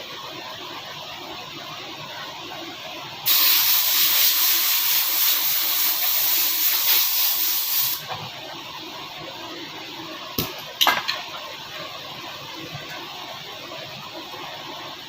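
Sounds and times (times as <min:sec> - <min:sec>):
pressurised gas hissing: 0:03.2 - 0:08.1.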